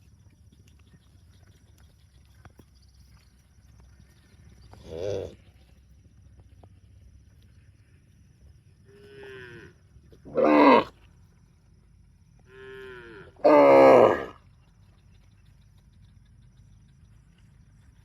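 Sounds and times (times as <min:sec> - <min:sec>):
cow mooing: 0:10.3 - 0:10.9, 0:12.5 - 0:14.4.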